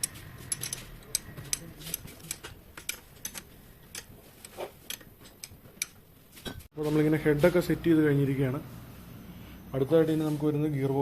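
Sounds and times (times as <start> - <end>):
metallic clicks and taps of tools: 0.0 - 6.0.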